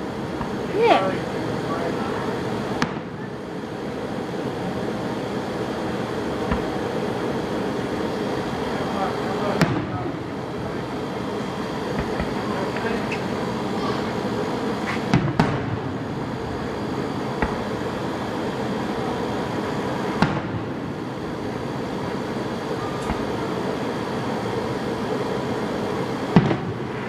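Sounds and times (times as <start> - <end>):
fireworks bangs: 2.8 - 3.2, 6.4 - 6.9, 9.5 - 10.2, 11.9 - 13.2, 15.0 - 15.9, 17.2 - 17.9, 20.2 - 20.7, 22.9 - 23.5, 26.3 - 27.0.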